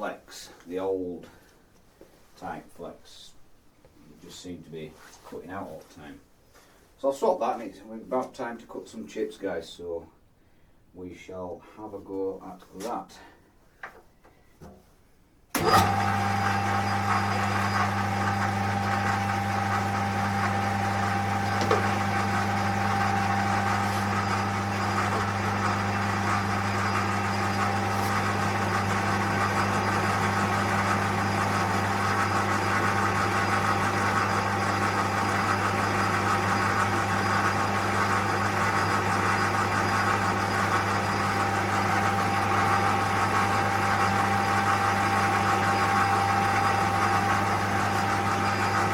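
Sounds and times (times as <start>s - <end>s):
lathe running: 15.6s - 48.9s.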